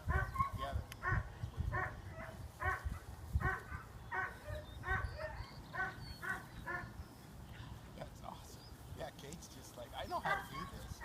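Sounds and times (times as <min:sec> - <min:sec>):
dog barking: 0:00.1 - 0:06.9, 0:10.2 - 0:11.0.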